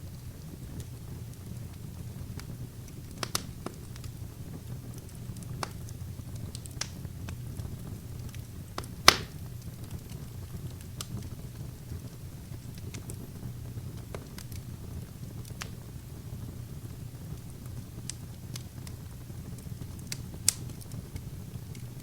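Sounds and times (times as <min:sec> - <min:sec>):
low rumble of flames: 0:00.0 - 0:22.0
wood fire crackling and popping: 0:00.0 - 0:22.0
loud sharp pop: 0:09.1 - 0:09.4.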